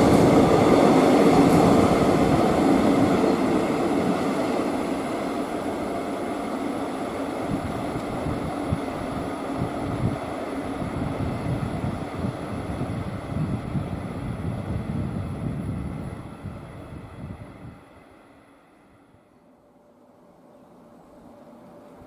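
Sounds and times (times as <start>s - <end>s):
wind buffeting microphone: 0.0s - 4.5s, 7.4s - 18.0s
train rumbling past: 0.0s - 19.3s.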